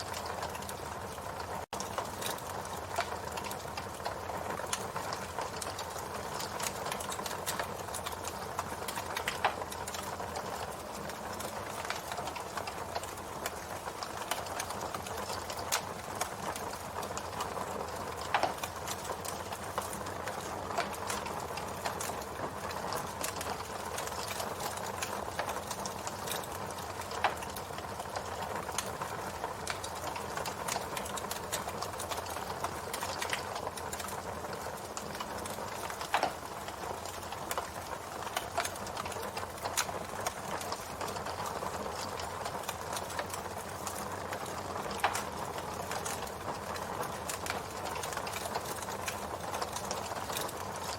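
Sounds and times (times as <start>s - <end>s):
fire hissing and crackling: 0.0s - 50.9s
wood popping and snapping: 18.2s - 22.0s, 34.8s - 46.4s.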